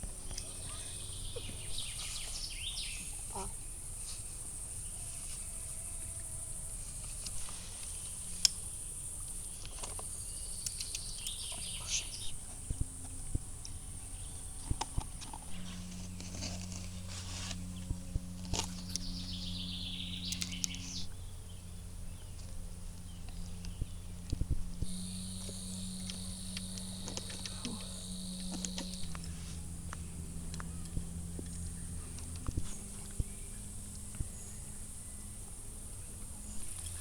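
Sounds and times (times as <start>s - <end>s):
low steady hum: 0.0s - 37.0s
bird calls: 0.3s - 3.6s, 18.6s - 21.2s
high insect trill: 24.8s - 37.0s.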